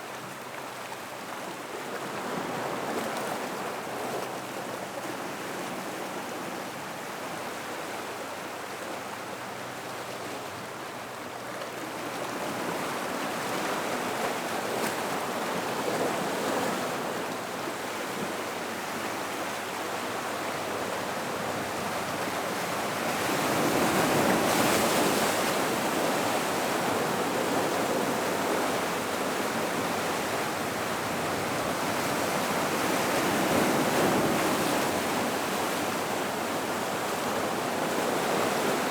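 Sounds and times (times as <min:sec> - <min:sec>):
ocean waves washing into rock pool: 0:11.7 - 0:38.9.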